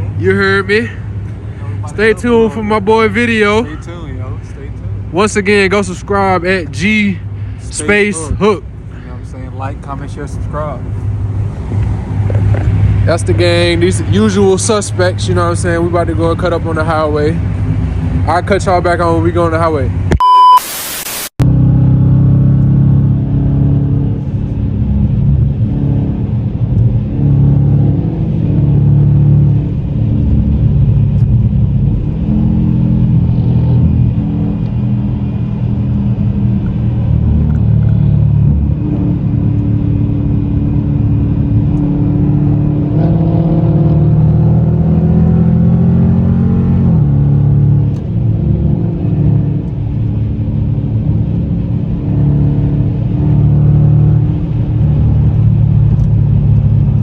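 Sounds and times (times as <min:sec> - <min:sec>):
car engine revving: 0:21.4 - 0:57.0.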